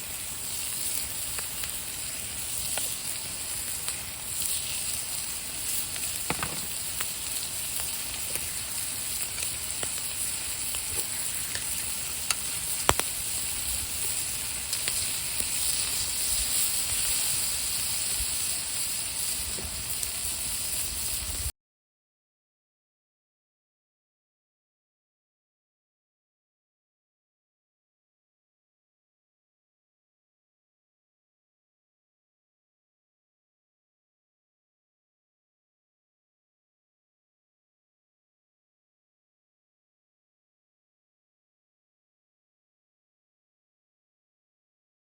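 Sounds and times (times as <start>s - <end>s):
food sizzling on griddle: 0.0s - 21.5s.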